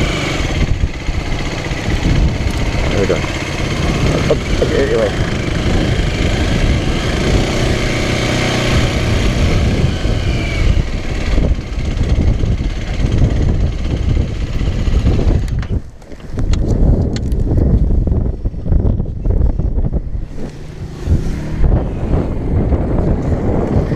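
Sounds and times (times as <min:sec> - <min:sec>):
small motorcycle engine running: 0:00.0 - 0:16.3.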